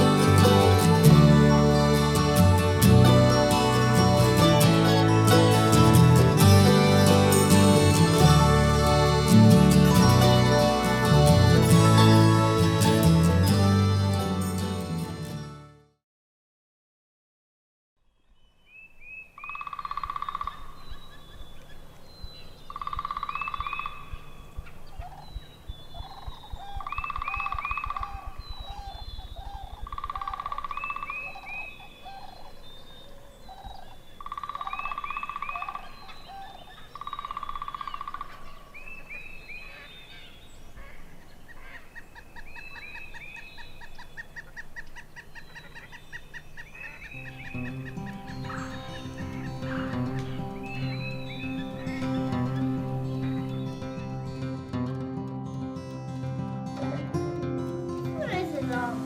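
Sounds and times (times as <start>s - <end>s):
birds calling: 0.0s - 14.6s, 18.3s - 59.0s.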